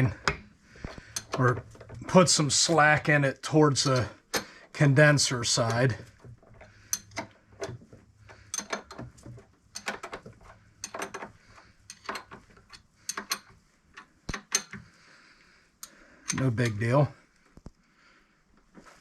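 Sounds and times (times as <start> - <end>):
metallic clicks of hand tools: 0.0 - 2.1, 5.6 - 15.0, 15.8 - 16.8.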